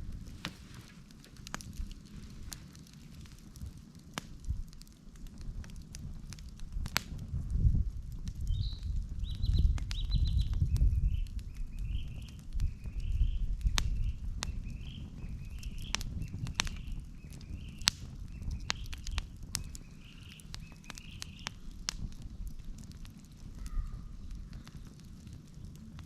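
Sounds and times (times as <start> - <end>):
wood fire crackling and popping: 0.0 - 26.0
bird calling: 19.7 - 21.6, 23.6 - 24.7.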